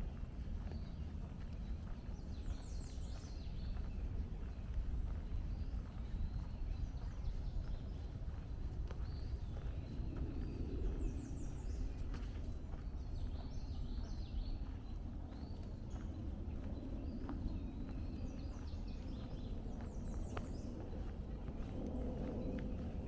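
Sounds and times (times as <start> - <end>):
footsteps on trail: 0.0 - 23.0
songbirds singing: 0.0 - 23.0
steady low rumble: 0.0 - 23.0.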